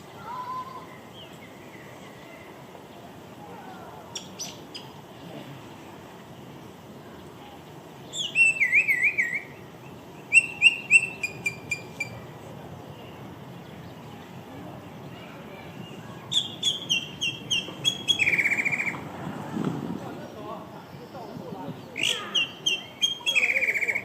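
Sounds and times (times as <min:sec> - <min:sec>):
songbird singing whistled notes: 0:04.1 - 0:04.9, 0:08.0 - 0:09.6, 0:10.2 - 0:12.2, 0:16.3 - 0:19.0, 0:21.8 - 0:24.0.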